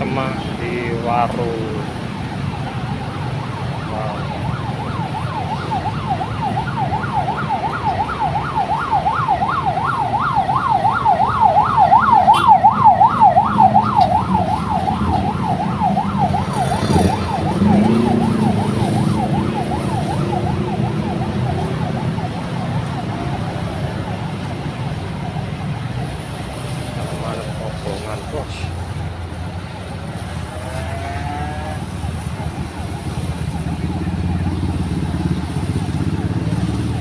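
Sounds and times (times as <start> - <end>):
emergency siren yelping: 0.0 - 37.0
road traffic rumble: 0.0 - 37.0.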